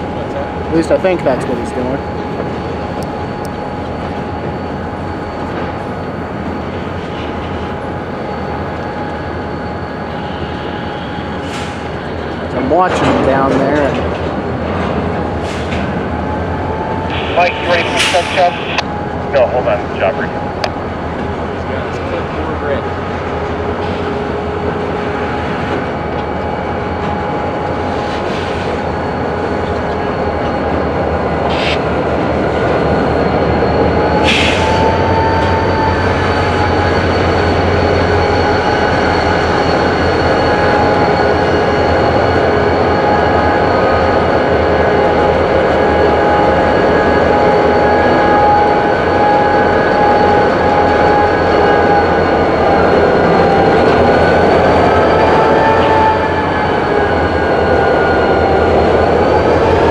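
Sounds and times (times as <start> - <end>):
freight cars rumbling: 11.2 - 47.7
steel wheel squeal: 27.2 - 45.1.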